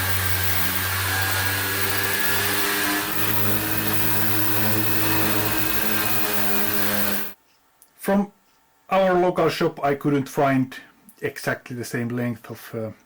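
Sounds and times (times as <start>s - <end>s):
electric sander running: 0.0s - 7.4s.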